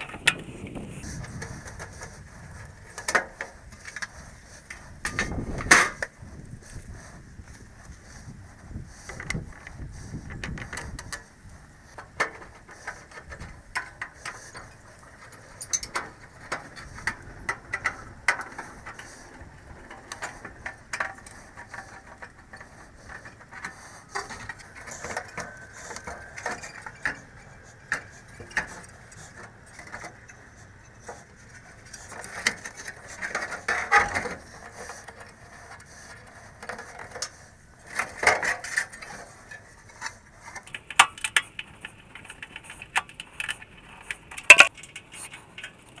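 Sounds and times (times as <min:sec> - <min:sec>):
hand tools clicking and clanking: 0:00.0 - 0:01.1, 0:12.0 - 0:31.1, 0:40.5 - 0:46.0.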